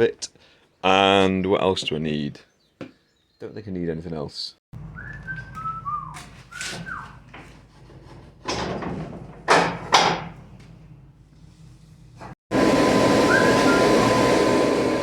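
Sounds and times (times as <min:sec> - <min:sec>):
short falling squeaks: 0:05.0 - 0:07.3.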